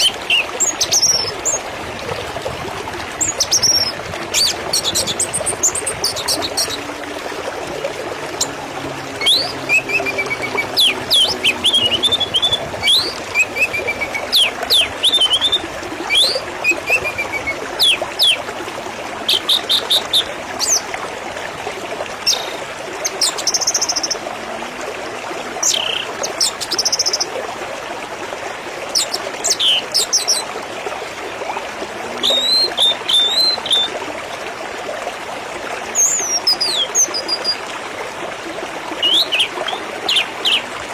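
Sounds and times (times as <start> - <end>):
water trickling: 0.0 - 40.9
birds chirping and trilling: 8.4 - 18.4.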